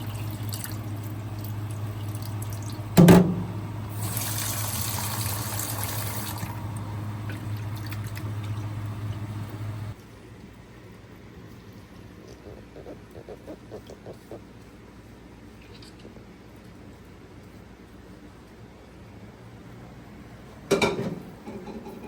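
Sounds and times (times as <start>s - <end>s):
water running and pouring: 0.0s - 3.0s, 3.9s - 9.2s
sharp metallic knock: 3.0s - 3.6s.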